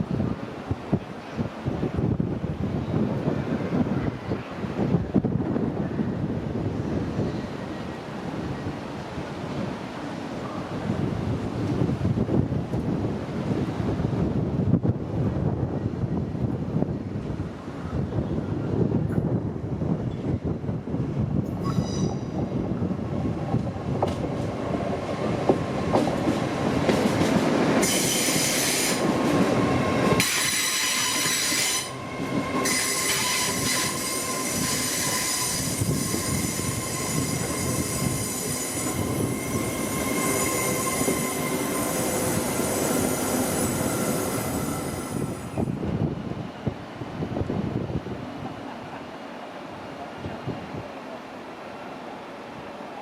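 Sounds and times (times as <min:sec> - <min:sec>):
train rumble: 0:00.0 - 0:53.0
metallic wheel squeal: 0:32.6 - 0:44.2.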